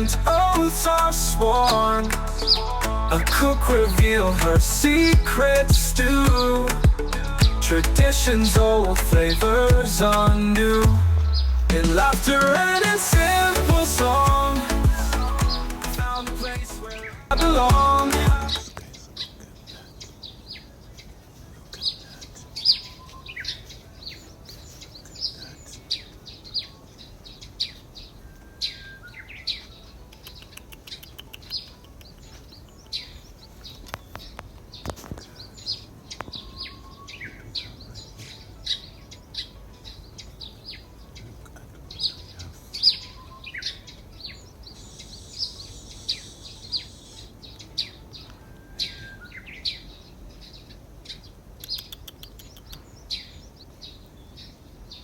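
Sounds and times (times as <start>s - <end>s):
birds chirping: 0.0s - 55.0s
bird whistles: 48.5s - 49.7s.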